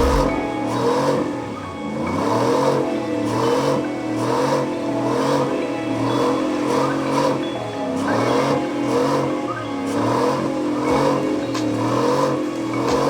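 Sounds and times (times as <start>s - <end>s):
car engine revving: 0.0s - 1.3s.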